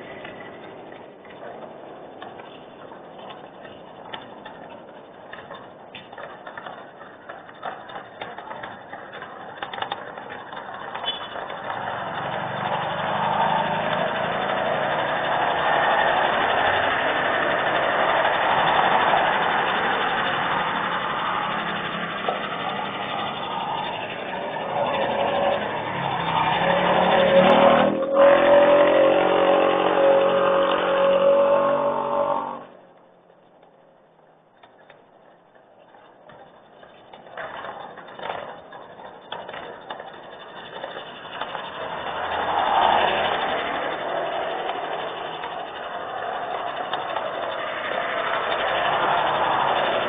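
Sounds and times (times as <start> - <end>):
vehicle engine running: 0.0 - 32.8, 35.8 - 50.0.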